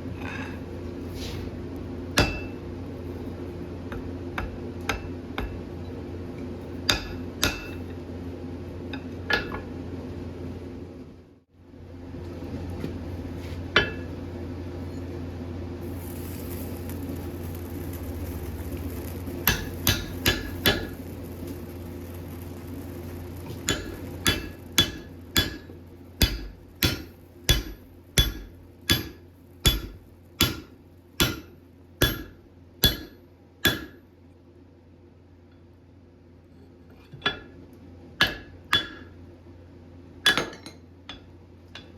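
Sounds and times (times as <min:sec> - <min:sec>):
steady hum: 0:00.0 - 0:36.7
hammer striking metal on anvil: 0:02.2 - 0:02.6, 0:06.9 - 0:07.8, 0:13.8 - 0:14.1, 0:19.4 - 0:21.0, 0:23.6 - 0:34.0, 0:38.2 - 0:39.2, 0:40.2 - 0:41.9.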